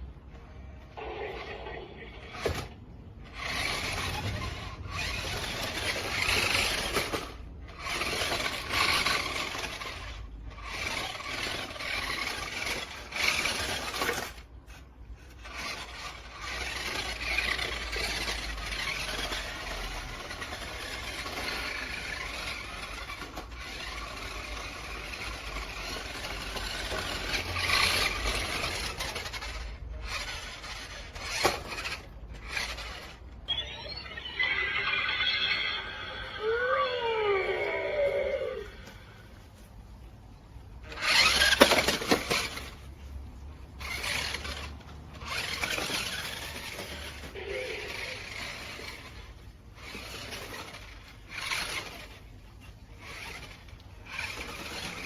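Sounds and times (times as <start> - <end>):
tyres scraping and squealing: 1.0 - 39.8, 40.8 - 55.0
electric motor whirring: 1.4 - 14.5, 15.3 - 38.7, 40.9 - 42.8.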